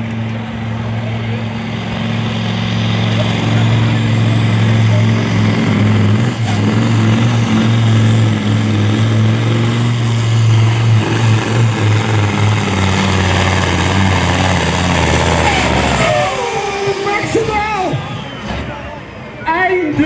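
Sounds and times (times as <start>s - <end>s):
diesel engine running under load: 0.0s - 19.4s
thin high whistle: 17.9s - 18.8s.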